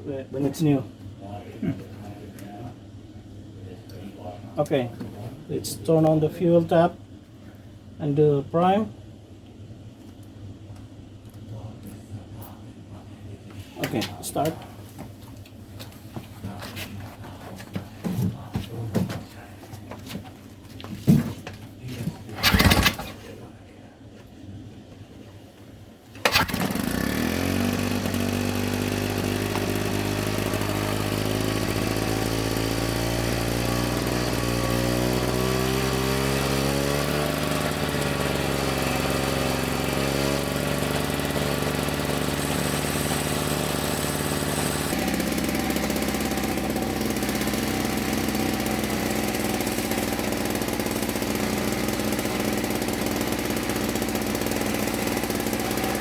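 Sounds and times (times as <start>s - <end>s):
power edger engine running: 22.3s - 23.2s, 26.2s - 56.0s.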